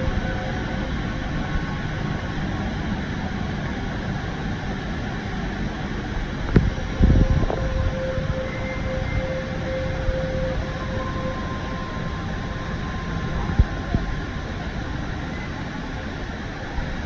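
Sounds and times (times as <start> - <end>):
indoor waterfall rushing: 0.0 - 17.0
faint held tones: 6.6 - 16.1.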